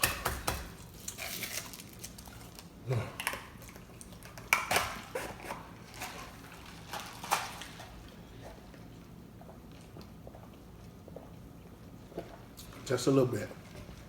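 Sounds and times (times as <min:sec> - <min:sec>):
crunching while eating: 0:00.8 - 0:10.9.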